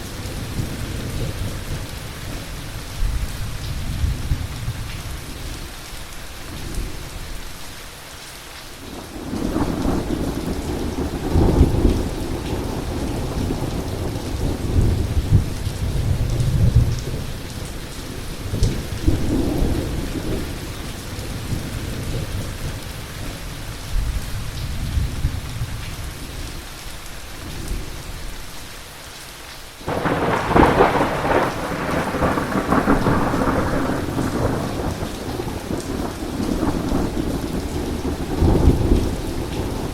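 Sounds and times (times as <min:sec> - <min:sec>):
heavy rain: 0:00.0 - 0:39.9
loud thunderclap: 0:29.9 - 0:39.9
rolling thunder: 0:29.9 - 0:39.9.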